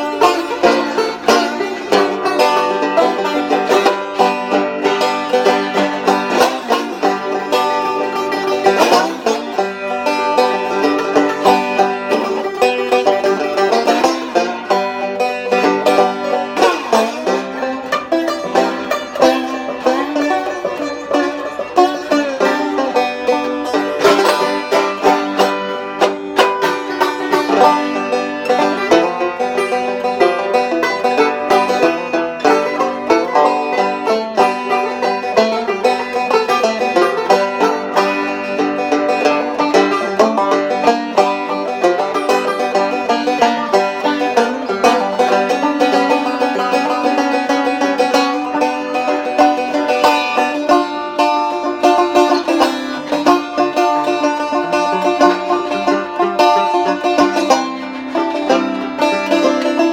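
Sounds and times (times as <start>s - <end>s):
banjo picking: 0.0s - 59.9s.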